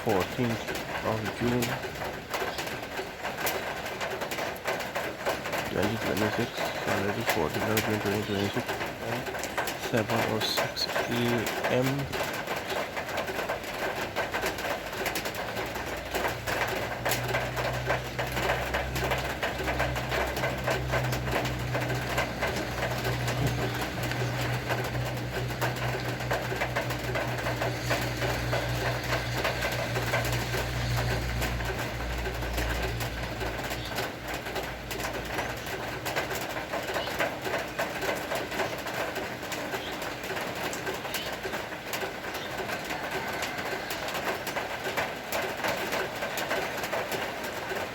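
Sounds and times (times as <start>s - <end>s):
rain falling: 0.0s - 47.9s
doves cooing: 17.0s - 31.8s.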